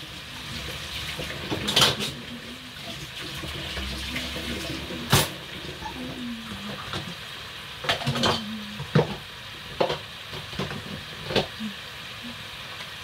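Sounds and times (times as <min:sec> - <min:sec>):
plantain sizzling in oil: 0:00.0 - 0:13.0
utensils and dishes clattering: 0:01.1 - 0:07.2, 0:07.8 - 0:11.5.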